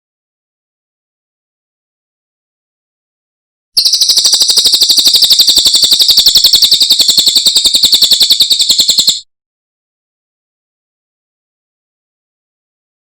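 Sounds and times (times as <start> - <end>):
songbird rapid high trill: 3.8 - 9.2.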